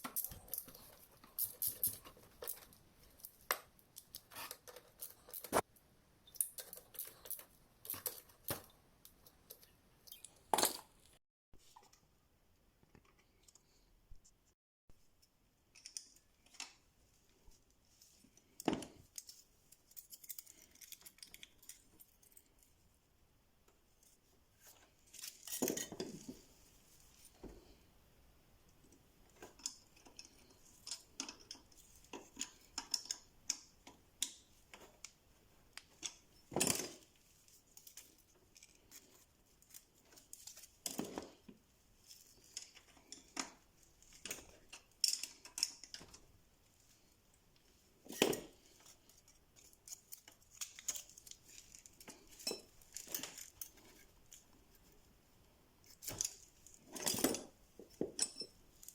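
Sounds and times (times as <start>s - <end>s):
metal tools clinking and knocking: 56.0s - 58.6s.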